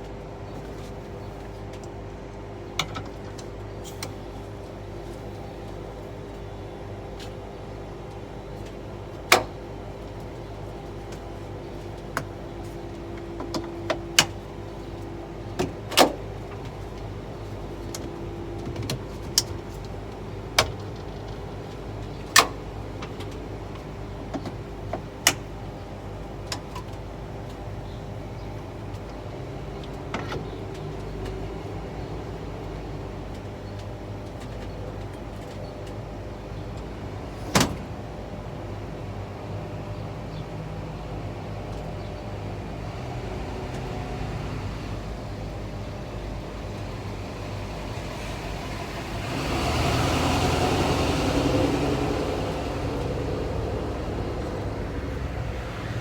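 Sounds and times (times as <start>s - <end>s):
truck engine idling: 42.3s - 56.0s.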